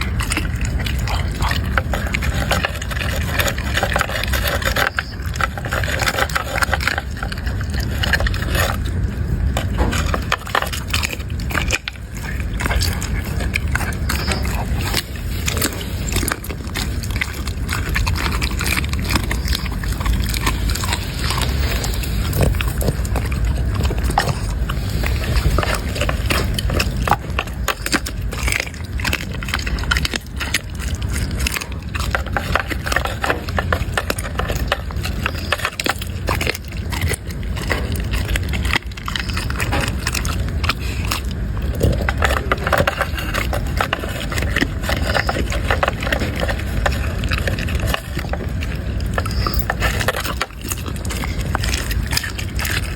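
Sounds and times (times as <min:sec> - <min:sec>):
dog crunching food: 0:00.0 - 0:52.9.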